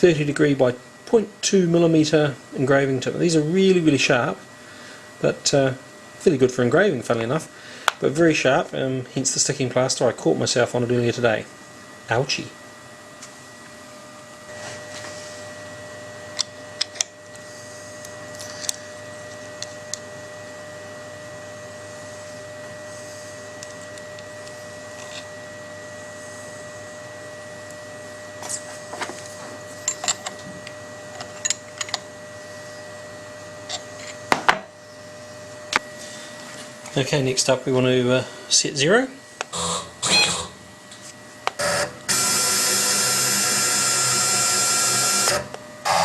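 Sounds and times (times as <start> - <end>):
electrical hum with high whine: 0.0 - 46.0.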